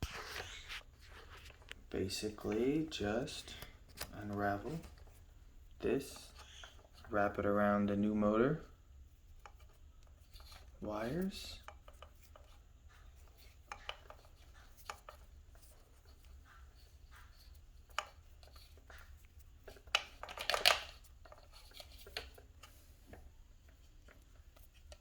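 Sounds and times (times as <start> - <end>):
rustling and scraping: 0.0 - 25.0
small clicks and taps: 11.6 - 25.0.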